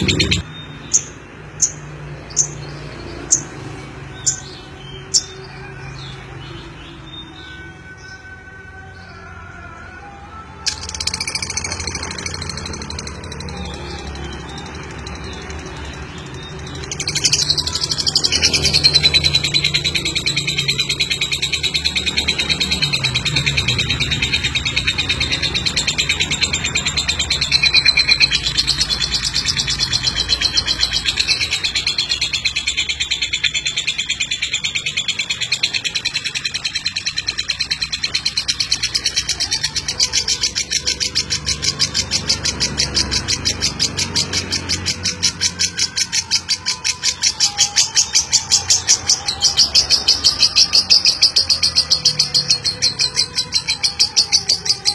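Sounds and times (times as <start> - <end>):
lovebird chattering trill: 0.0 - 1.8.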